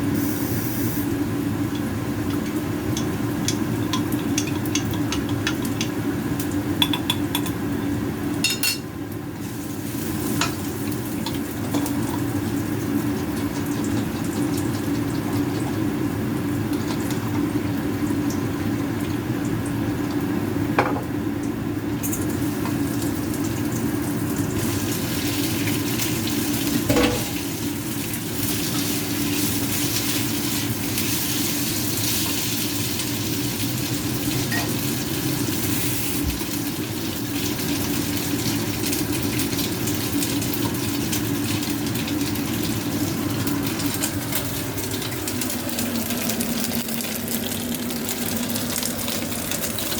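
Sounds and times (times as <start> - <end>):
food sizzling in a frying pan: 0.0 - 49.9
metal utensil clinking on pan: 8.5 - 8.8.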